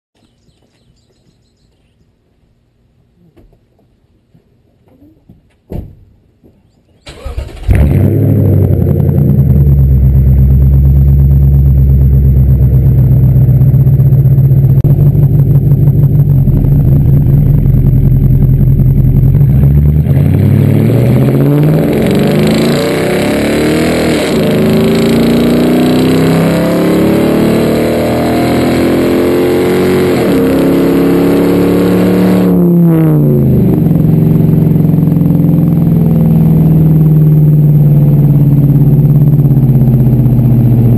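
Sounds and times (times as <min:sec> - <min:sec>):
truck engine starting: 0:07.0 - 0:30.9
engine revving: 0:07.1 - 0:40.9.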